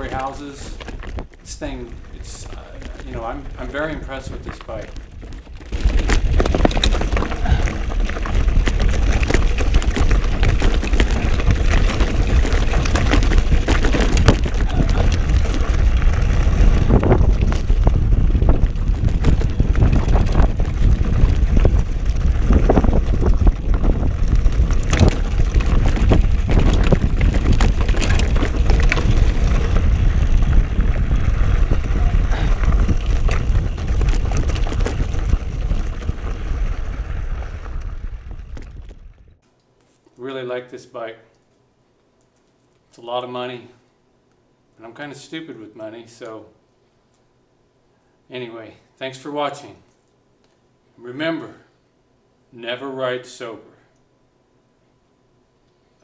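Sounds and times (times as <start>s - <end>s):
bike clattering over rocks: 0.0s - 36.8s
wind on microphone: 0.0s - 39.4s.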